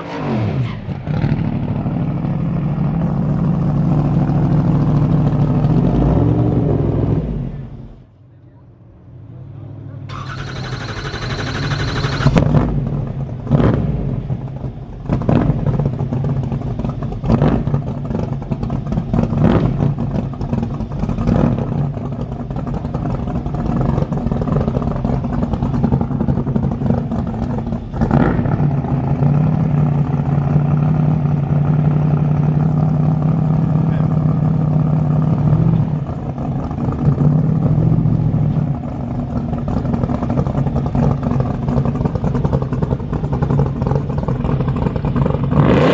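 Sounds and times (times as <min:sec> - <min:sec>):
engine idling: 0:00.8 - 0:45.9
engine cracks: 0:10.1 - 0:12.6.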